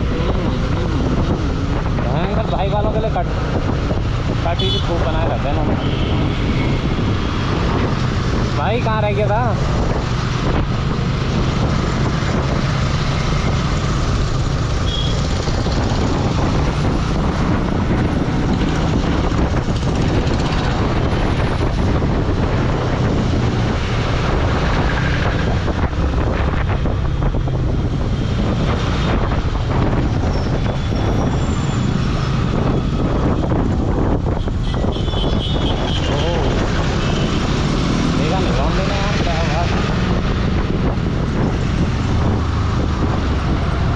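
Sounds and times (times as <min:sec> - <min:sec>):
wind rushing over microphone: 0:00.0 - 0:43.9.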